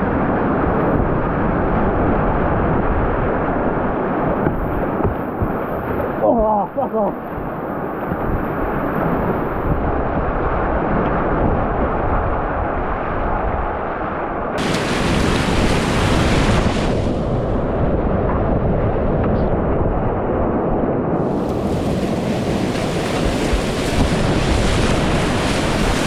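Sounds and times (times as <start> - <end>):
wind buffeting microphone: 0.0 - 26.0
whitewater rushing: 14.6 - 17.7, 21.2 - 26.0
hissing water splash: 14.6 - 17.8, 21.2 - 26.0.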